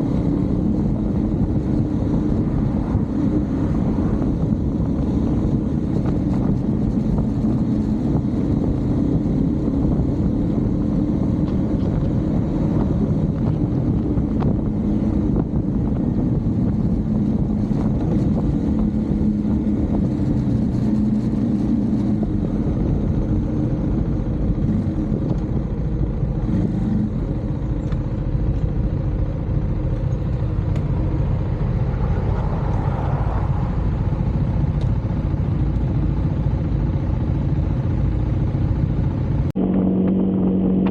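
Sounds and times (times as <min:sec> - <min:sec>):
motorcycle engine running: 0:00.0 - 0:32.8, 0:33.4 - 0:40.9.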